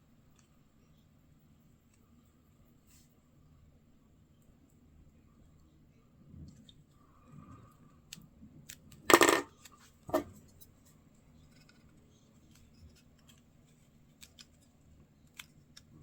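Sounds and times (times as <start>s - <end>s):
small objects clattering on workbench: 9.1s - 10.2s.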